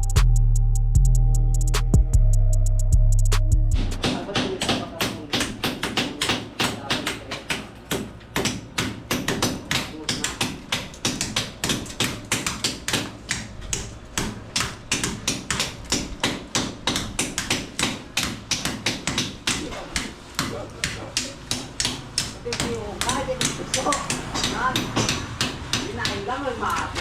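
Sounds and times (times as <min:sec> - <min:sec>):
rapid hammer tapping: 0:03.8 - 0:27.0.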